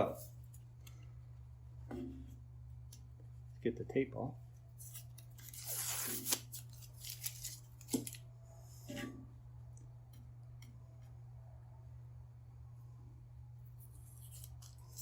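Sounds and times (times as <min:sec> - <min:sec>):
tape peeled off plywood: 0:04.8 - 0:08.2.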